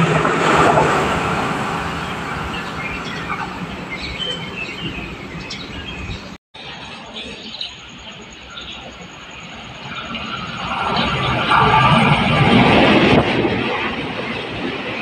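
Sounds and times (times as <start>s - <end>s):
train rumbling past: 0.0s - 15.0s
small birds chirping: 1.9s - 6.4s, 7.1s - 11.4s.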